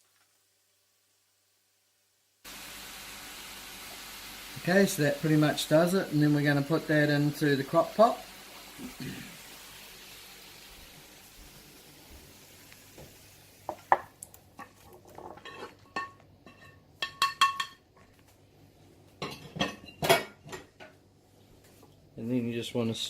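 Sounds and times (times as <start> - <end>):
faint hiss: 0.0 - 14.5
metal utensil scraping a pan: 14.6 - 17.7.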